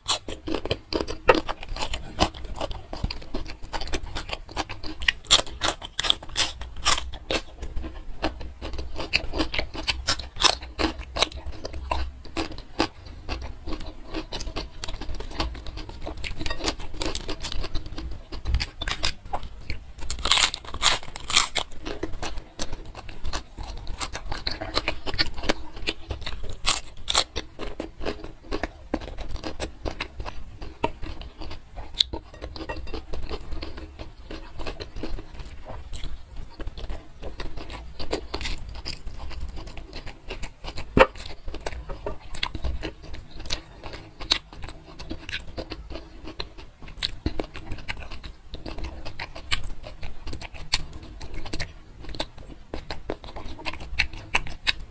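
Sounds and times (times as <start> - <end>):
crunching bites of cucumber: 20.0 - 21.9.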